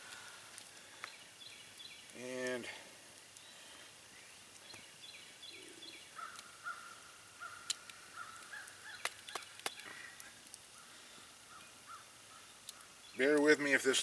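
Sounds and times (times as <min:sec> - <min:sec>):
faint birds calling: 0:00.0 - 0:13.6
sharp clicks: 0:09.0 - 0:10.6.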